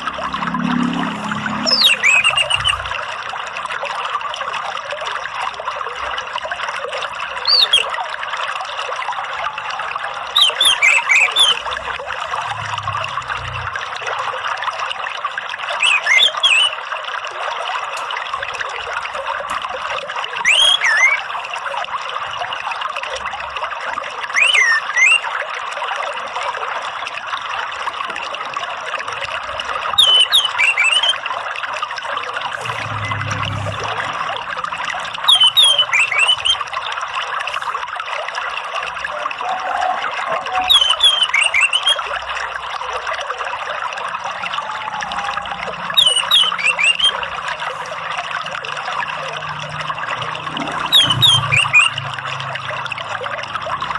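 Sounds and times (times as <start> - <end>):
running water trickling: 0.0 - 53.9
whistled bird calls: 0.7 - 3.0, 7.4 - 8.0, 10.3 - 11.9, 15.8 - 16.8, 20.4 - 21.7, 24.3 - 25.4, 29.9 - 31.3, 35.0 - 36.8, 39.4 - 42.1, 44.3 - 47.9, 50.6 - 52.1.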